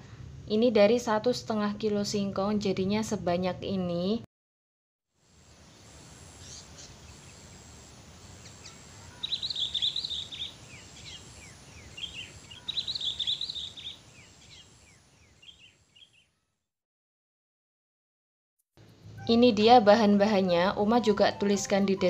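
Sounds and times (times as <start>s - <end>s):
low outdoor background noise: 0.0s - 4.3s, 5.2s - 16.4s, 18.8s - 22.0s
small birds chirping: 5.4s - 16.5s
rapid chattering birdsong: 5.6s - 16.3s.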